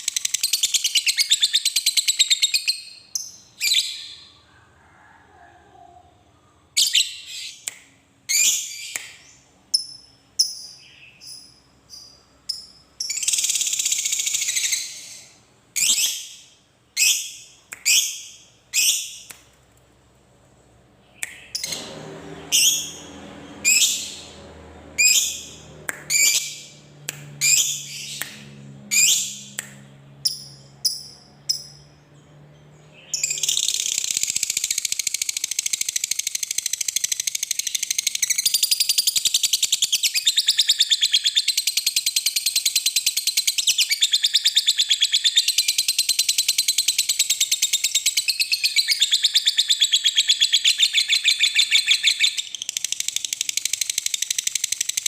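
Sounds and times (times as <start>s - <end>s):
lovebird chirping: 25.0s - 26.8s, 32.8s - 54.3s.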